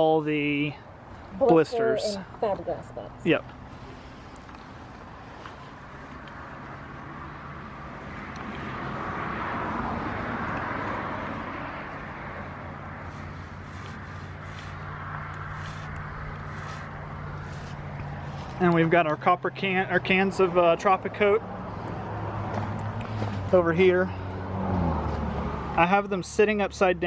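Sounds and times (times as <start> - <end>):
low engine hum: 0.9 - 20.6
motor vehicle passing: 1.0 - 25.9.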